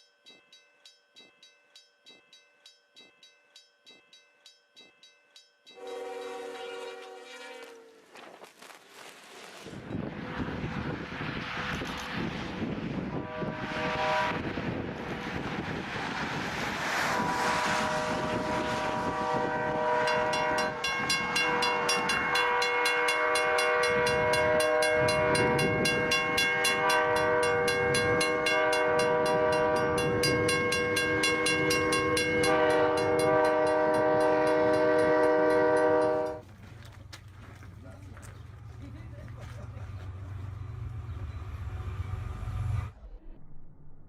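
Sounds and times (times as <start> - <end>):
locomotive air horn chord: 5.8 - 8.1, 13.1 - 14.9, 17.0 - 36.4
rushing noise: 9.1 - 22.4
train clattering on rails: 13.8 - 42.7.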